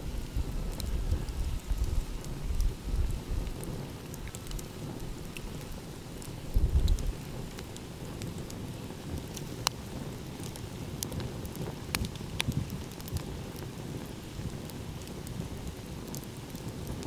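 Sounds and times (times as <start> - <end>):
steady low rumble: 0.0 - 7.5
wood fire crackling and popping: 0.0 - 17.0.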